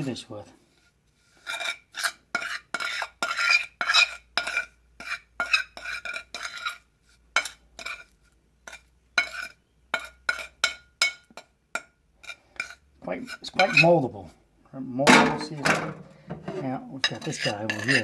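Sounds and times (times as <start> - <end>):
metal tool scraping wet concrete: 1.3 - 6.8, 15.1 - 18.0.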